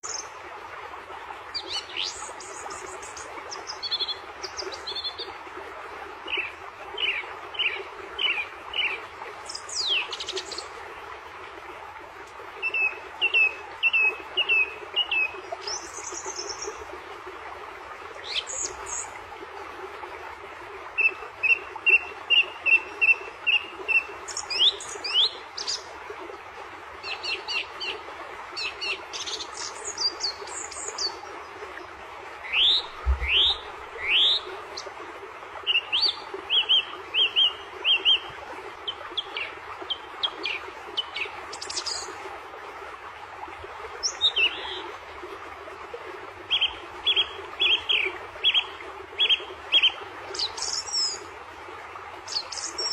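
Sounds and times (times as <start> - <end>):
bird chirping: 32.6 - 34.4
bird sweeping calls: 32.6 - 34.4.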